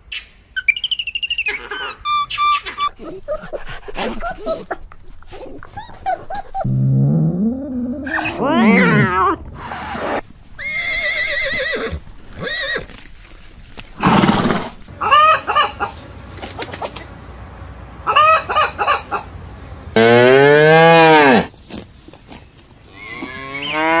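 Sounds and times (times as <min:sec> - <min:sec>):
hens clucking: 0:14.9 - 0:20.2
cattle mooing: 0:19.9 - 0:21.5, 0:23.1 - 0:24.0.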